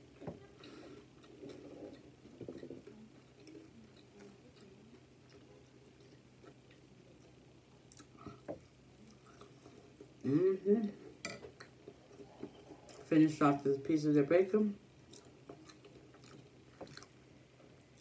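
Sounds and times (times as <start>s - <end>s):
low steady hum: 0.0s - 18.0s
chewing food: 0.6s - 10.2s, 11.5s - 13.2s, 15.0s - 18.0s.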